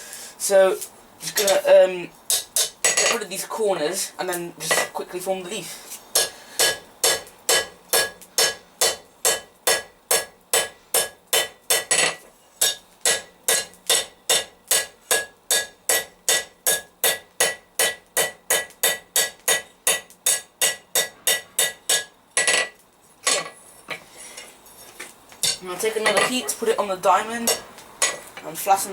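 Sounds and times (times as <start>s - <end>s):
hammer striking steel on anvil: 2.3s - 3.2s, 6.2s - 23.6s, 27.4s - 28.2s.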